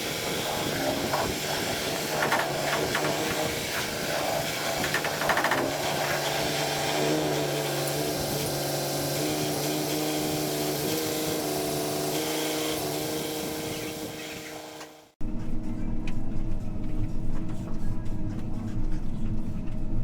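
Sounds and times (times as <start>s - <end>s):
hiss: 0.0s - 14.8s.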